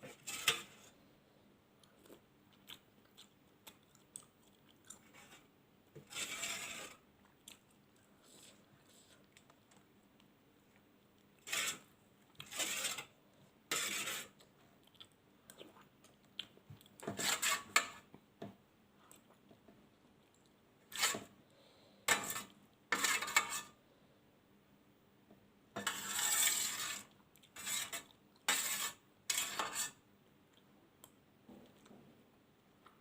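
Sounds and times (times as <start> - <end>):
chewing: 1.8 - 5.5, 7.2 - 8.2, 9.0 - 11.4, 14.4 - 17.0.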